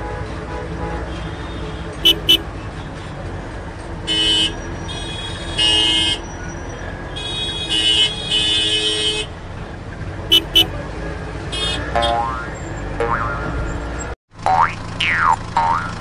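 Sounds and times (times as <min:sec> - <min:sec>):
vehicle horn tooting: 0:02.0 - 0:02.5, 0:10.3 - 0:10.7.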